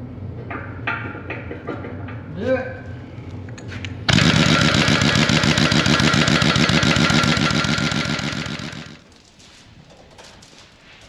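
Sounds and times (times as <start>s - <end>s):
impact wrench hammering: 4.1s - 9.0s.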